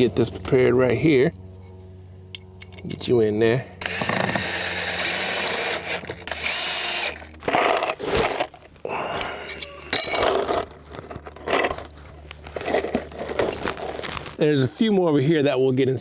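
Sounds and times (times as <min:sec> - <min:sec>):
power drill driving screws: 0:03.8 - 0:08.6.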